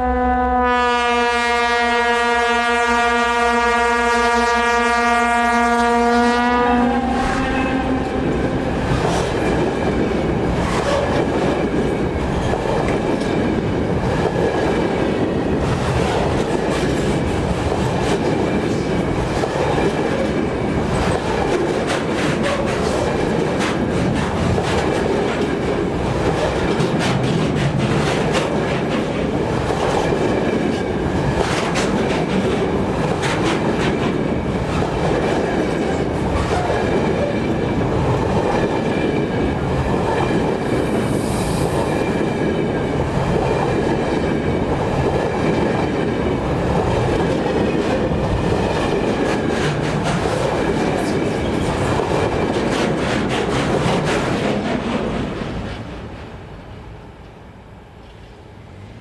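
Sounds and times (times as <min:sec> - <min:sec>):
freight train rumbling past: 0:00.0 - 0:59.0
wheels clicking over rail joints: 0:08.3 - 0:40.7.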